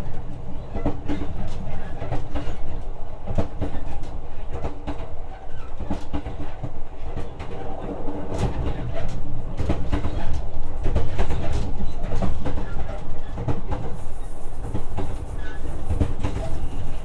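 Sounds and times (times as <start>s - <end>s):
train rumbling hum: 0.0s - 17.0s
train wheels clacking over rail joints: 0.6s - 17.0s.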